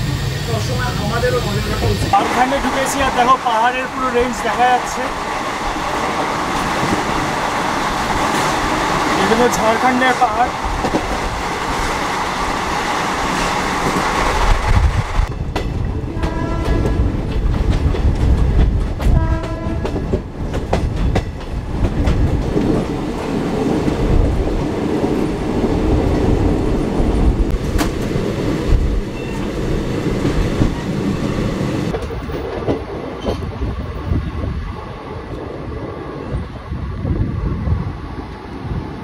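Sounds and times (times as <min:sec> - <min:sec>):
train wheels clacking on rails: 0:00.0 - 0:33.6
train horn blasts: 0:16.1 - 0:17.1, 0:19.1 - 0:20.0.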